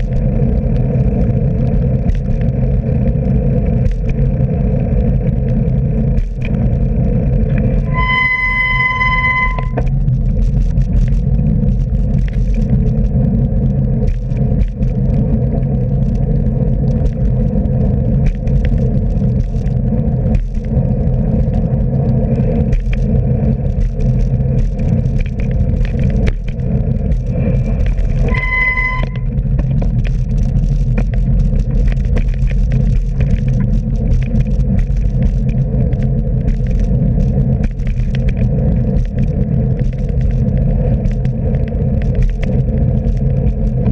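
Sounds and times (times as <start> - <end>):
road traffic rumble: 0.0 - 43.9
wind: 0.0 - 43.9
short high beep: 7.9 - 9.9, 28.3 - 29.3.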